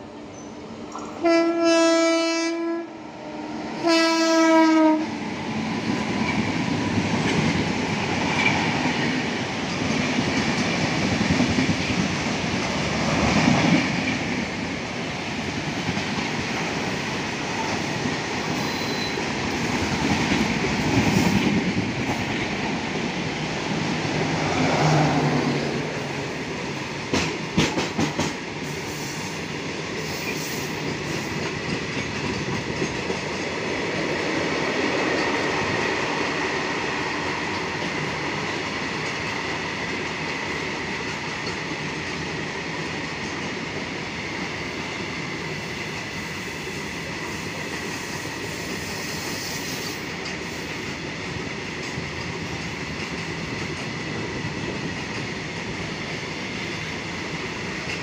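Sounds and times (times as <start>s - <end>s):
express train passing: 0.0s - 58.0s
goods train rumbling past: 0.0s - 58.0s
locomotive horn: 1.2s - 3.0s, 3.8s - 5.1s
wheels clicking over rail joints: 30.2s - 34.2s.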